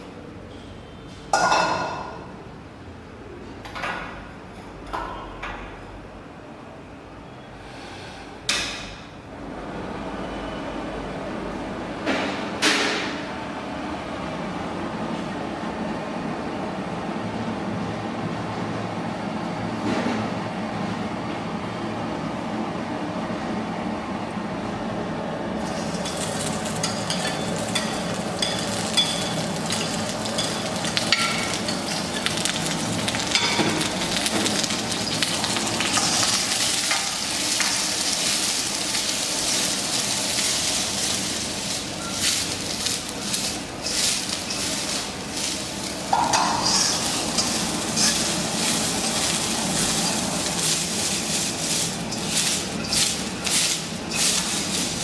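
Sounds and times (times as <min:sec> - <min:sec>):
food sizzling in a pan: 0:25.6 - 0:55.0
utensil stirring and scraping: 0:34.9 - 0:55.0.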